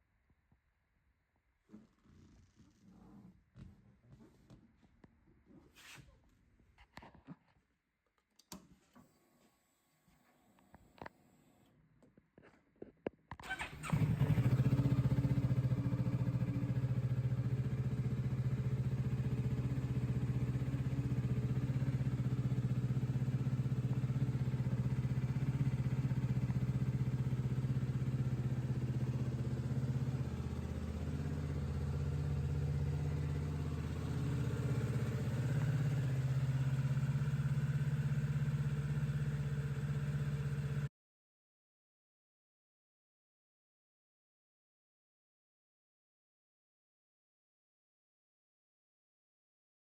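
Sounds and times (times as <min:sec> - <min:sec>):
motorcycle engine starting and idling: 0:13.4 - 0:40.9.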